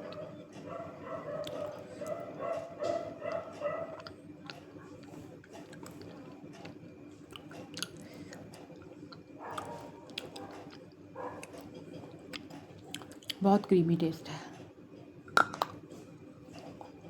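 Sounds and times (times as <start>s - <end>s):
chewing and crunching clay: 0.0s - 13.4s.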